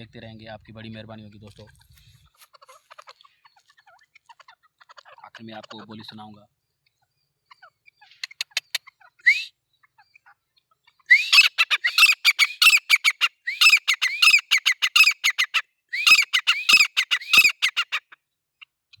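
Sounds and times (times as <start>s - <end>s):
francolin calling: 7.5s - 9.5s, 11.0s - 18.0s.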